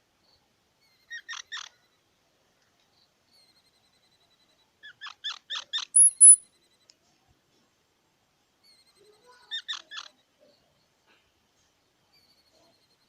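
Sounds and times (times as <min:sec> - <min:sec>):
squirrel chirping: 0:00.8 - 0:02.0, 0:03.3 - 0:06.8
squirrel squeaking: 0:00.8 - 0:02.0, 0:03.3 - 0:06.8, 0:08.6 - 0:10.6.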